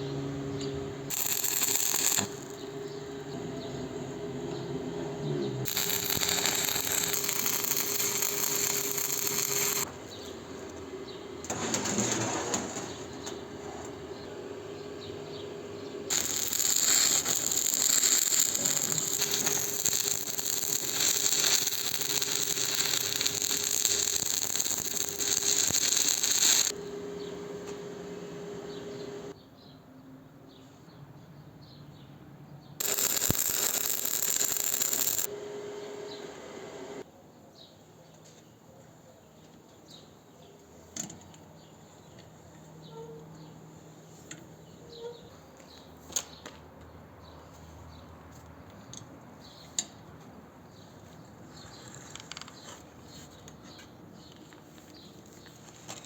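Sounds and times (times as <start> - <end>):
power tool working metal: 0.5 - 9.9, 16.1 - 29.3, 32.8 - 37.0
small mechanical clicks: 5.7 - 9.9, 16.1 - 26.8, 32.8 - 35.3
motor hum: 15.7 - 29.3.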